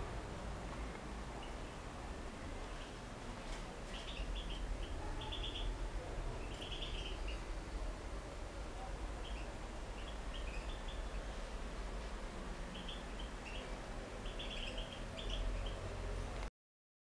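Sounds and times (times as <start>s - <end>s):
low background noise: 0.0s - 16.5s
small birds chirping: 1.4s - 1.9s, 2.6s - 8.0s, 8.7s - 11.7s, 12.6s - 16.2s.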